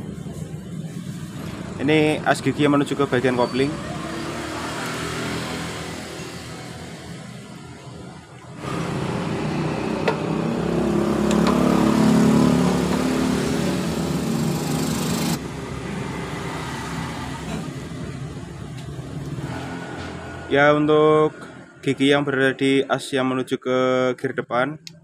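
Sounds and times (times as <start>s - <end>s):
motor engine running: 8.6s - 15.5s.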